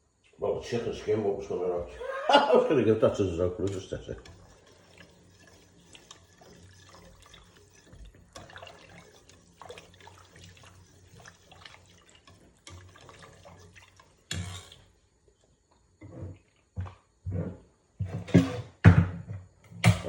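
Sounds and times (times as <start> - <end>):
drips and clinks: 2.0 - 15.0
tap running into sink: 3.0 - 14.9
knock: 18.3 - 20.0.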